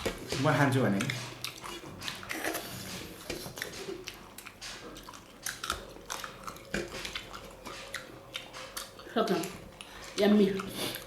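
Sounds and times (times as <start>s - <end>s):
people chewing food: 0.0s - 11.0s.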